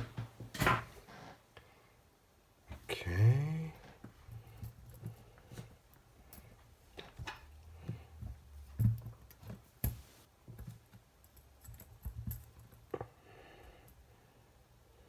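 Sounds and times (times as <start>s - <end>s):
small parts clicking and knocking: 4.0s - 13.1s.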